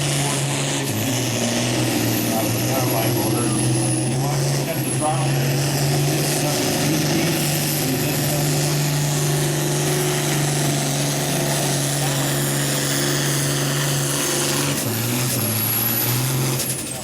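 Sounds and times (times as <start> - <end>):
tractor diesel engine at high revs: 0.0 - 17.0.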